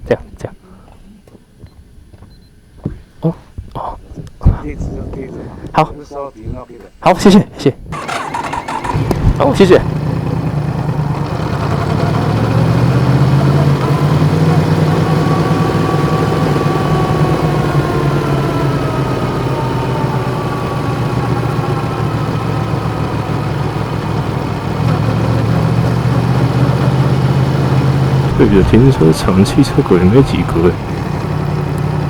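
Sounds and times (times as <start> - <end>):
motorcycle engine idling: 8.0 - 32.0.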